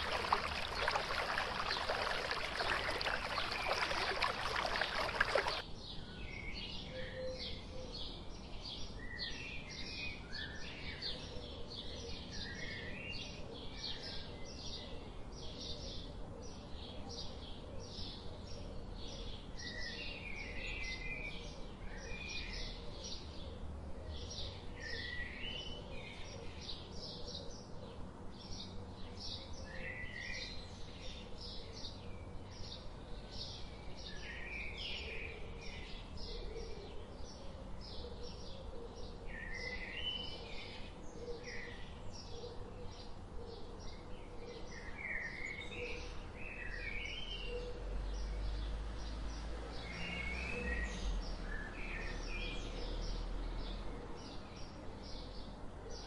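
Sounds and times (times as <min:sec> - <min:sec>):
scattered bird calls: 0:00.0 - 0:05.6.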